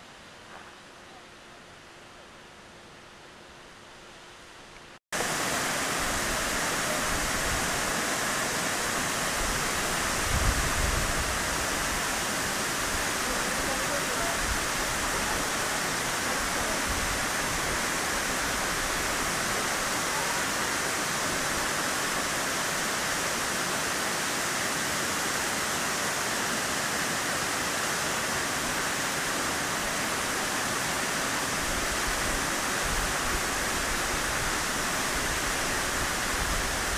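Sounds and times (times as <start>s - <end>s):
waterfall pouring: 5.2s - 36.9s.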